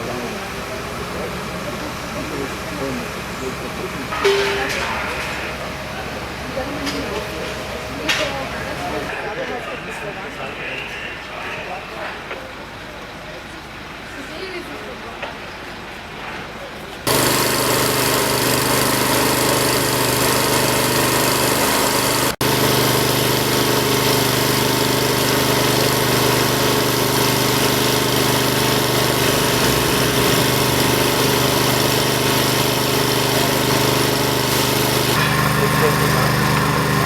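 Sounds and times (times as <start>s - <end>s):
engine running steadily: 0.0s - 9.1s, 17.1s - 37.0s.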